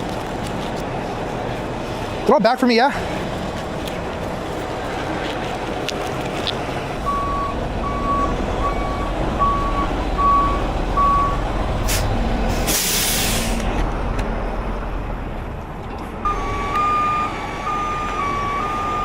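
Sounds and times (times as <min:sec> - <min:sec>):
truck diesel engine running: 0:00.0 - 0:19.0
back-up alarm beeps: 0:07.0 - 0:11.4, 0:16.2 - 0:19.0
air-brake hiss: 0:11.8 - 0:13.7
short air hiss: 0:11.8 - 0:13.7.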